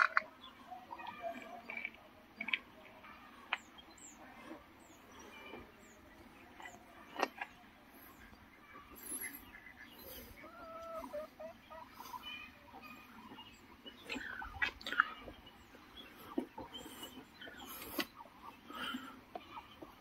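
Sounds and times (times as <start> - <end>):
scattered bird calls: 0.0 - 20.0.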